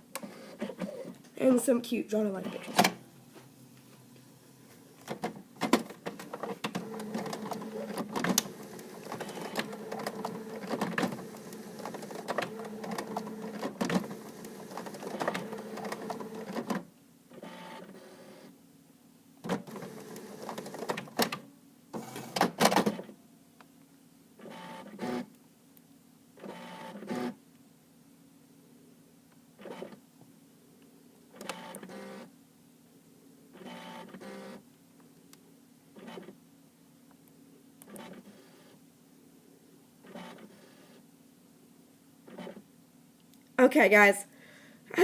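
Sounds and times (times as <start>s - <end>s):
printer mechanism whirring: 5.0s - 16.8s, 19.4s - 21.4s, 22.0s - 23.1s, 31.4s - 32.3s, 33.6s - 34.6s, 40.1s - 40.9s.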